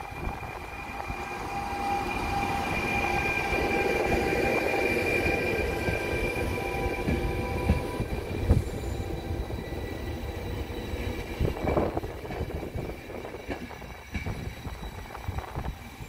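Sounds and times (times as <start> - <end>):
high wheel squeal: 0.0 - 16.0
train wheels rumbling: 0.0 - 16.0.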